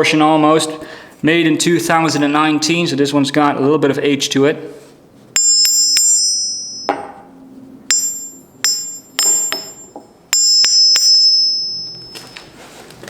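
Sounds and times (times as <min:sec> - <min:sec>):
hammer striking ringing anvil: 0:05.4 - 0:12.3.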